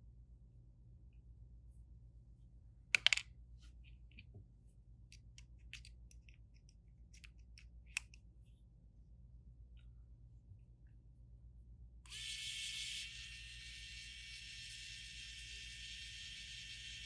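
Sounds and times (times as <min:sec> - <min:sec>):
tools clicking on phone parts: 0:03.0 - 0:03.3.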